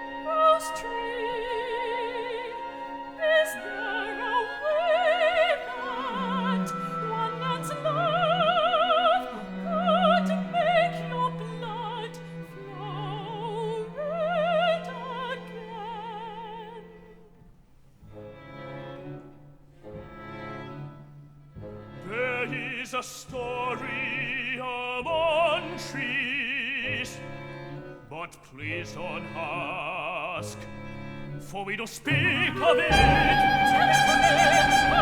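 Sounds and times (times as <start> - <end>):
orchestra low strings: 0.0 - 35.0
operatic high voice singing: 31.6 - 35.0.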